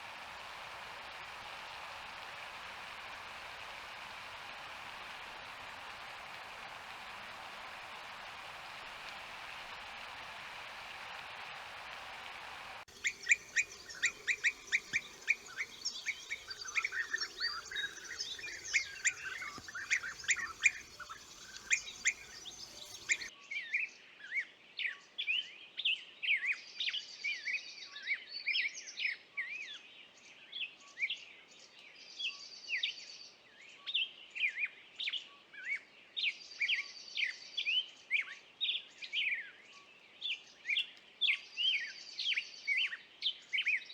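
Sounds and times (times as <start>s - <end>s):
songbirds chirping: 0.0s - 11.4s, 12.1s - 23.3s
steady hiss: 0.0s - 23.3s
buzzy bird trill: 12.9s - 23.3s.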